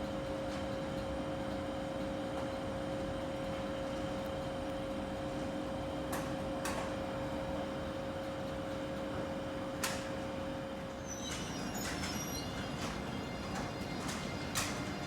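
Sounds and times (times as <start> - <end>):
two-tone train equipment hum: 0.0 - 15.0
faint high-pitched squeaks: 11.0 - 14.2.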